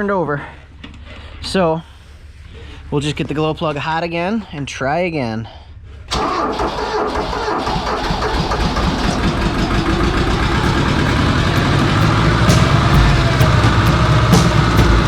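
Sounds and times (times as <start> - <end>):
diesel tractor engine starting: 6.1 - 15.0.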